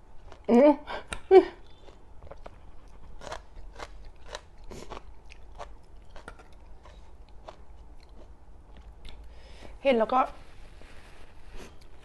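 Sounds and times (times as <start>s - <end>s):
person chewing crunchy food: 0.0s - 0.5s, 1.6s - 9.5s.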